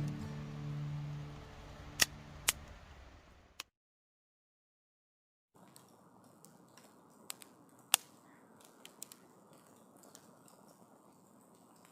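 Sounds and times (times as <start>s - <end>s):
campfire crackling: 0.0s - 3.6s, 5.6s - 11.9s
sharp pops of fire: 6.4s - 10.2s.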